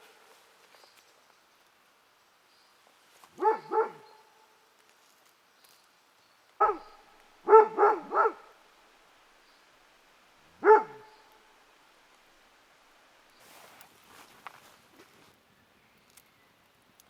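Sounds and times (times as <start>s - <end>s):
dog barking: 3.4s - 4.4s, 6.6s - 8.6s, 10.6s - 11.2s.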